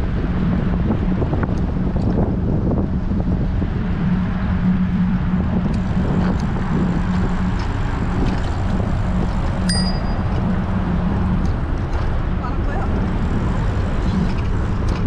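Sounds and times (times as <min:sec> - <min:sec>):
low rumble of moving bike: 0:00.0 - 0:15.0
wind noise on microphone: 0:00.0 - 0:15.0
bicycle bell ding: 0:09.7 - 0:10.3.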